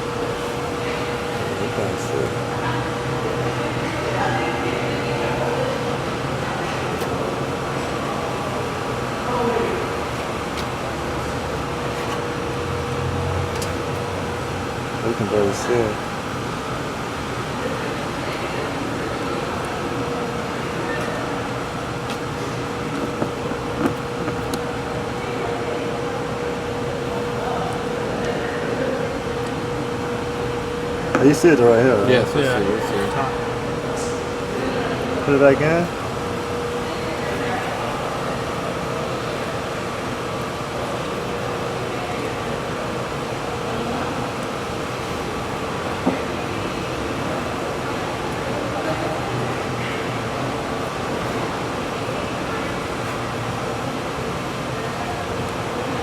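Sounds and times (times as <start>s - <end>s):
machine hum with steady tone: 0.0s - 56.0s.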